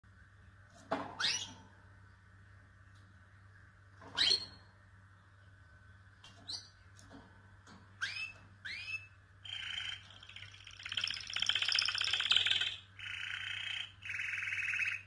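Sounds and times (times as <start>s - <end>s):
faint steady hum: 0.0s - 15.0s
canary buzzy trill: 8.0s - 15.0s
canary chirps sweeping up: 8.0s - 15.0s.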